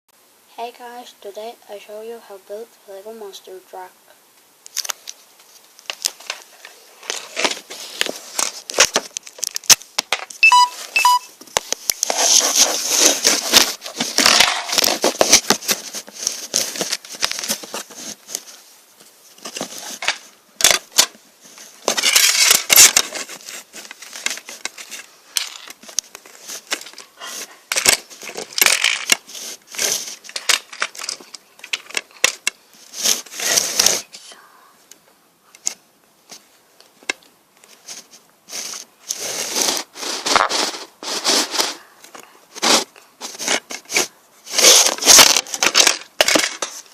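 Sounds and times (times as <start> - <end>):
rustling: 4.6 - 34.9, 35.5 - 46.9
plastic bricks clicking and clattering: 21.9 - 23.2, 23.9 - 26.1, 27.7 - 29.2, 44.6 - 46.9.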